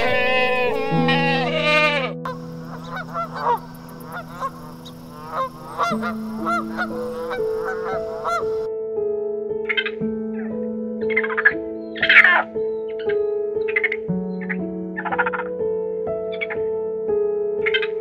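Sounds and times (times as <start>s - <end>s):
geese honking: 0.0s - 8.7s.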